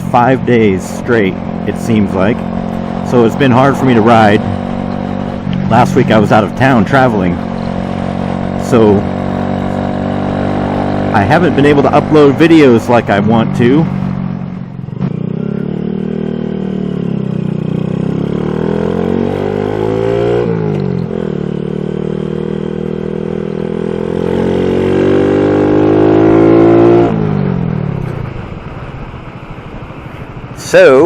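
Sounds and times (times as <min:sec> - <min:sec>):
motorbike engine accelerating: 0:00.0 - 0:31.0.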